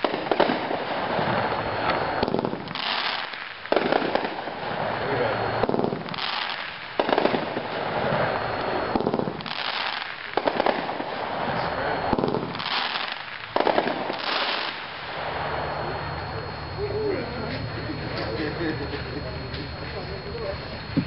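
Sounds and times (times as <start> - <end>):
fireworks reports with crackle: 0.0 - 21.0.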